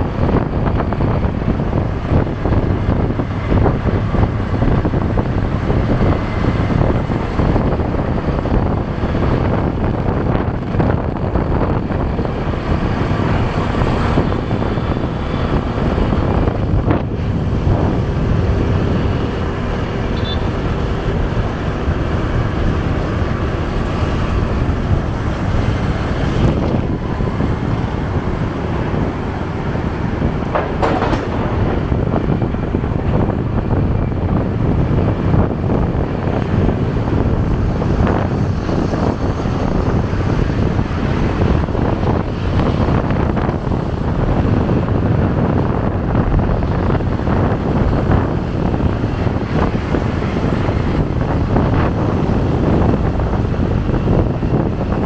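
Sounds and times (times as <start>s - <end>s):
motorcycle engine rumble: 0.0s - 55.0s
road noise: 0.0s - 55.0s
wind buffeting microphone: 0.0s - 55.0s
brief knock: 30.4s - 32.4s.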